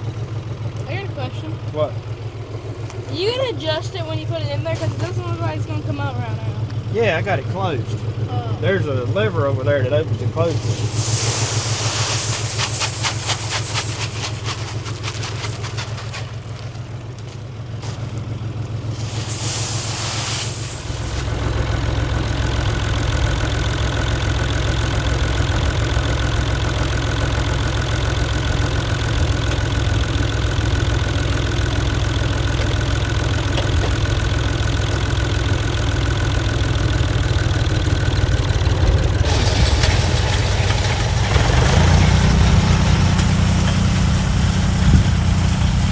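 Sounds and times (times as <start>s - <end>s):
tractor engine running: 0.0s - 45.9s
steady high whine: 10.4s - 16.7s, 18.9s - 22.2s
fast fine ticking: 10.5s - 17.2s, 18.9s - 23.7s.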